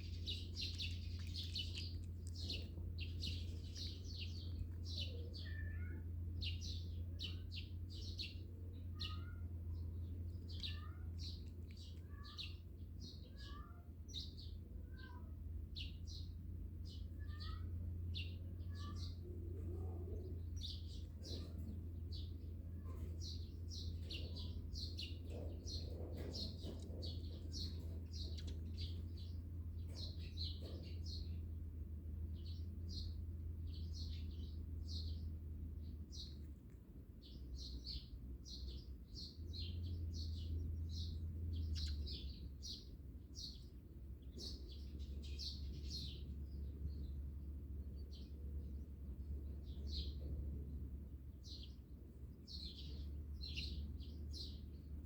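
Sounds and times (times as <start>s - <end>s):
steady low rumble: 0.0s - 8.8s
small songbirds chirping: 0.0s - 55.0s.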